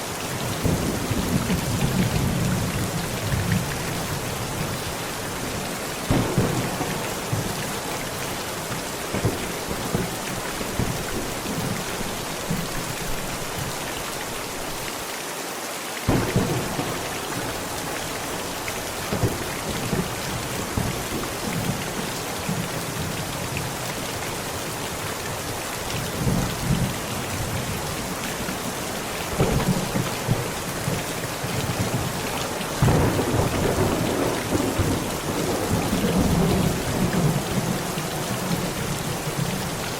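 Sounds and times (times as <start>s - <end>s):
heavy rain on a tent: 0.0s - 39.9s
thunder rumbling: 5.4s - 12.9s, 16.1s - 22.6s, 26.2s - 39.9s.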